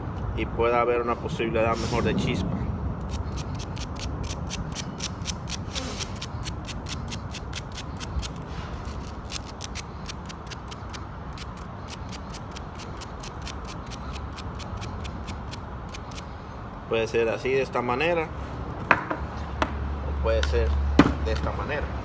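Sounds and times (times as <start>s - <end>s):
sandpaper scratching on metal: 3.0s - 16.2s.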